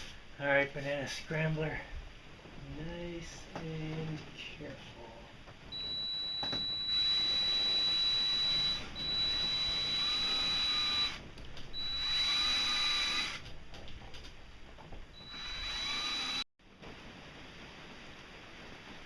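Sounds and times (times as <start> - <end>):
electric drill boring metal: 5.8 - 11.2, 11.8 - 13.5, 15.2 - 16.5.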